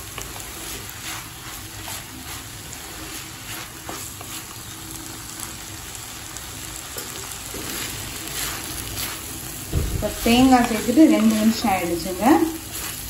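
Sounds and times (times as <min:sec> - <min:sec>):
beans sizzling in a pan: 0:00.0 - 0:13.0
spatula scraping a pan: 0:00.1 - 0:04.7, 0:07.2 - 0:13.0.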